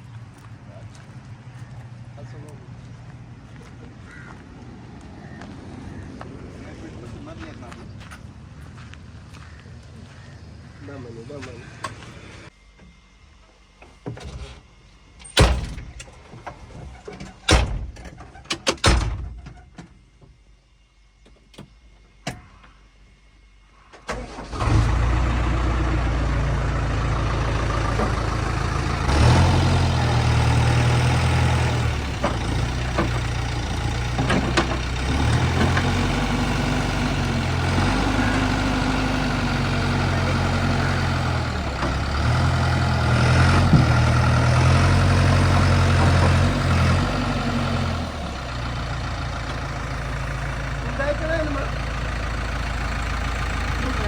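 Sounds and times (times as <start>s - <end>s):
diesel engine running: 0.0s - 12.5s, 24.1s - 54.0s.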